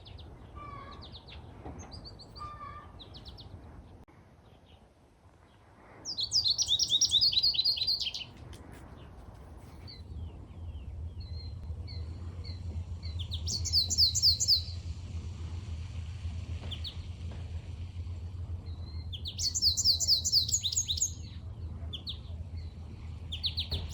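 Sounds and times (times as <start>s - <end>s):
steady low hum: 3.0s - 23.9s
finch singing: 6.1s - 8.4s, 9.8s - 14.8s, 18.6s - 23.9s.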